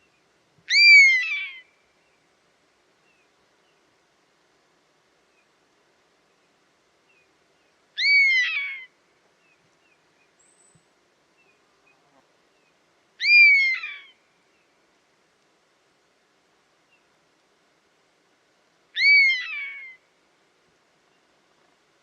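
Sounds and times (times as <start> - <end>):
buzzard calling: 8.0 - 8.9, 13.2 - 14.1, 19.0 - 20.0.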